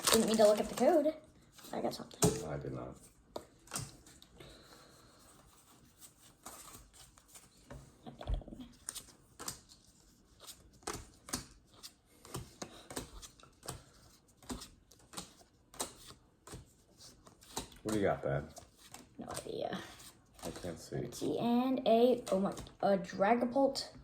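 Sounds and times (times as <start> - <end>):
cards clicking and rustling: 0.0 - 2.5, 3.4 - 4.3, 6.0 - 7.9, 8.7 - 21.4, 22.2 - 22.8.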